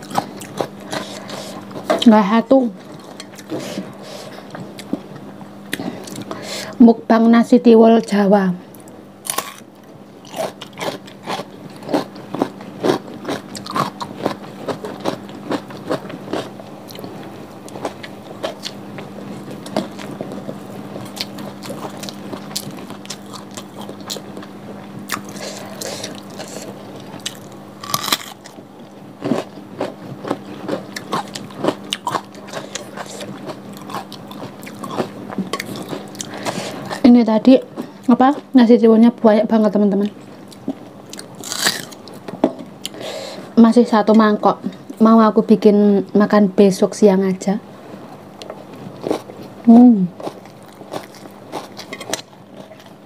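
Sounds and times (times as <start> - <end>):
crunching and wet chewing: 0.0 - 2.1, 8.7 - 38.5, 40.2 - 43.1, 48.4 - 53.0.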